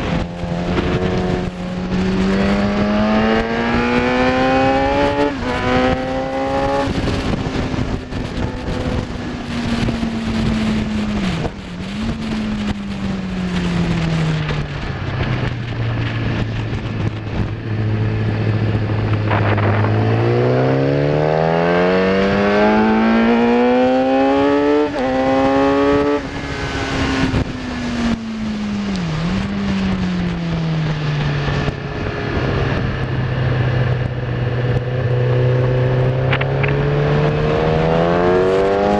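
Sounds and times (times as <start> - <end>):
sport bike engine revving: 0.0 - 9.1, 18.1 - 27.5, 34.7 - 38.9
wind rushing: 0.0 - 38.9.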